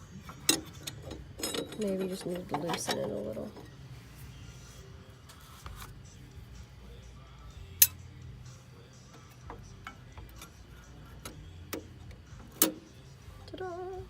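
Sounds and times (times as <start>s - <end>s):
metal clicks and clinks: 0.4s - 3.2s.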